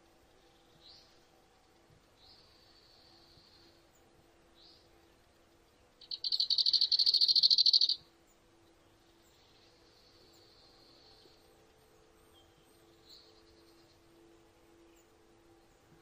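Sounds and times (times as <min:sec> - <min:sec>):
bird trilling: 0:06.0 - 0:08.0
faint thin bird calls: 0:06.0 - 0:08.0.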